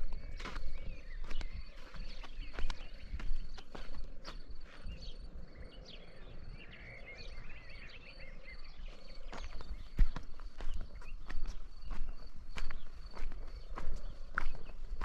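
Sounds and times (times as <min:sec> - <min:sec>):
small birds chirping: 0:00.0 - 0:15.0
footsteps: 0:09.2 - 0:15.0.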